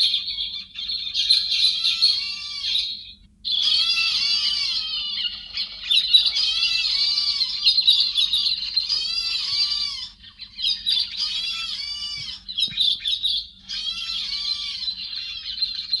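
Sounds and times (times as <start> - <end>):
bird singing: 0.0 - 16.0
faint steady hum: 0.0 - 16.0.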